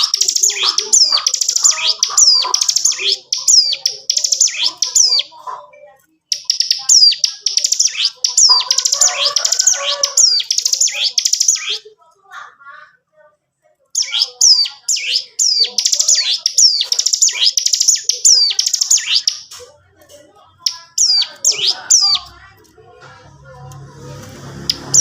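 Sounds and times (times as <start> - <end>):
bird chattering song with trills: 0.0 - 11.9, 14.0 - 19.6, 20.6 - 22.4, 24.6 - 25.0.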